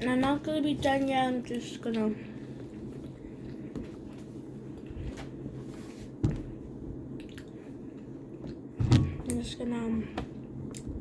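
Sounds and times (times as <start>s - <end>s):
steady low hum: 0.0s - 11.0s
dull thumps: 6.2s - 6.6s.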